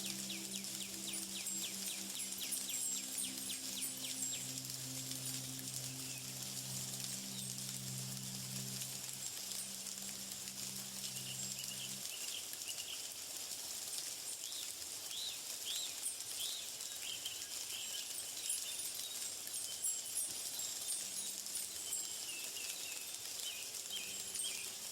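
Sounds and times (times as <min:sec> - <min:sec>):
small birds chirping: 0:00.0 - 0:13.1, 0:14.4 - 0:24.9
steady high hiss: 0:00.0 - 0:24.9.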